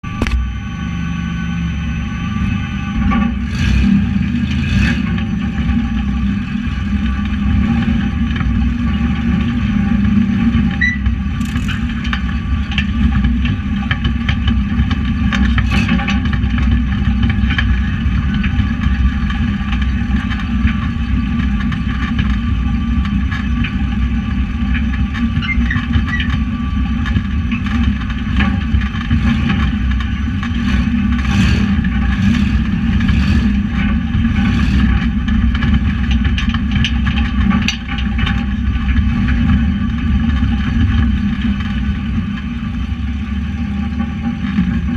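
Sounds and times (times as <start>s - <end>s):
truck engine running: 0.0s - 44.9s
truck knocks and rattles: 7.0s - 42.6s.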